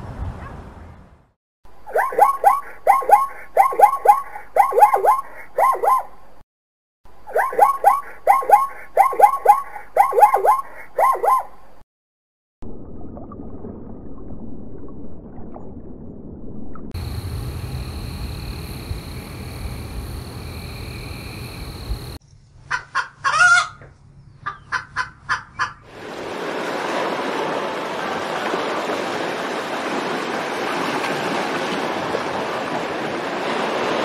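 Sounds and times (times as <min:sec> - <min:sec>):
low rumble: 0:12.6 - 0:22.2
steady high whine: 0:17.0 - 0:22.2
rooster crowing and clucking: 0:22.7 - 0:23.8
sea waves washing over rocks: 0:25.9 - 0:34.0.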